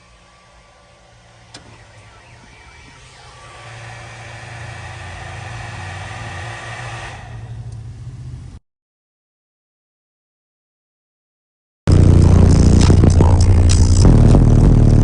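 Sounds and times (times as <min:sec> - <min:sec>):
deep bass from subwoofers: 0:11.9 - 0:15.0.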